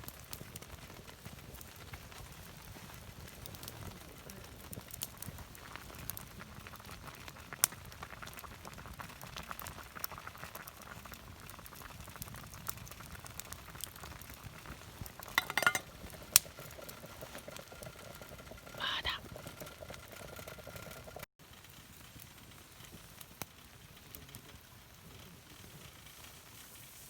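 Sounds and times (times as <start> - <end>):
fire crackles and pops: 0.0 - 27.0
food sizzling over campfire: 0.0 - 27.0.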